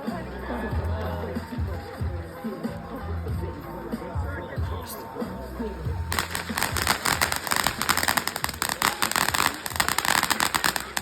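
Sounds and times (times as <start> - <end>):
fireworks crackling: 6.1 - 11.0.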